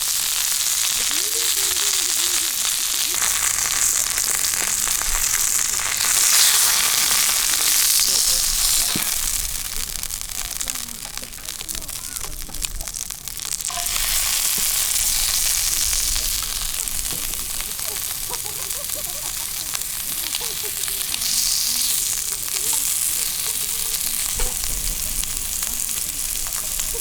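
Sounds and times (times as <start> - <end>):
fire popping and crackling: 0.0 - 27.0
food sizzling over campfire: 0.0 - 27.0.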